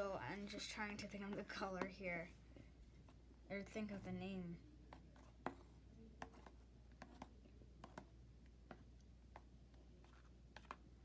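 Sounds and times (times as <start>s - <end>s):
utensil stirring slime in bowl: 0.0s - 2.3s, 3.1s - 11.0s.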